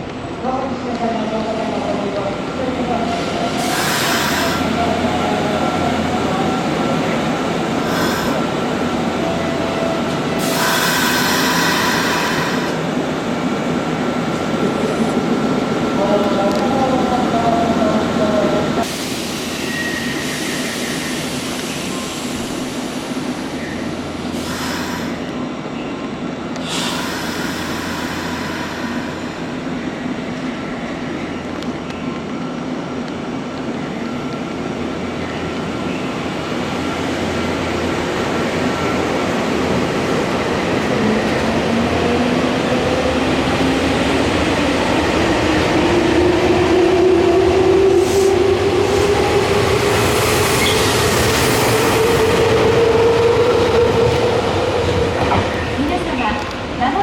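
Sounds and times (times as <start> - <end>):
train wheels rumbling: 0.8 - 25.5.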